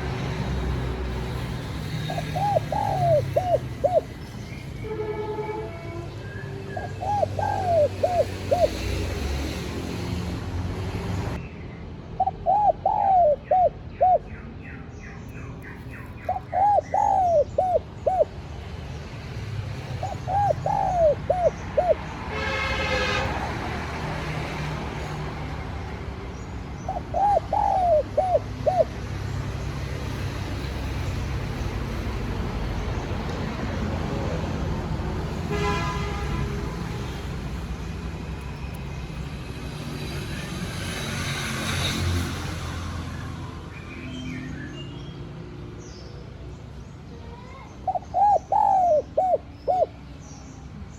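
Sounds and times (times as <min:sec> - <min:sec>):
dove cooing: 0:01.8 - 0:04.2, 0:06.8 - 0:09.0, 0:12.2 - 0:14.4, 0:15.7 - 0:18.4, 0:19.9 - 0:22.1, 0:26.8 - 0:29.0, 0:47.8 - 0:50.0.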